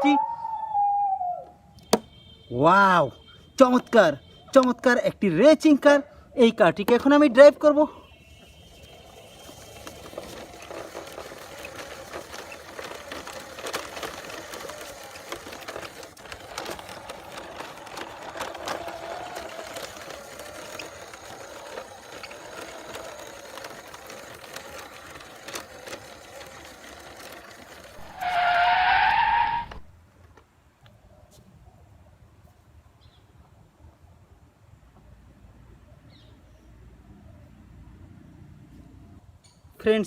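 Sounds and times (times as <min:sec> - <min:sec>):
toy car wheels rolling and scraping: 0:06.5 - 0:30.4.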